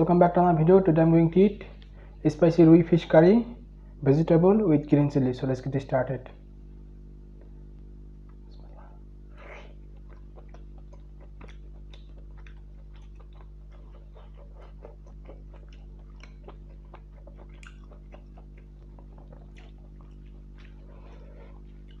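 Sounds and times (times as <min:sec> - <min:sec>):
low electrical hum: 0:00.0 - 0:22.0
person chewing and smacking: 0:08.2 - 0:22.0.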